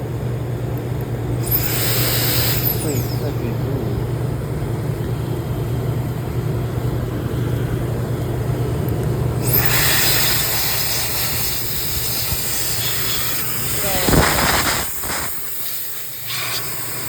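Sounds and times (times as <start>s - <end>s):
steady low hum: 0.0s - 17.0s
air duster motor whining: 1.3s - 5.3s, 8.5s - 17.0s.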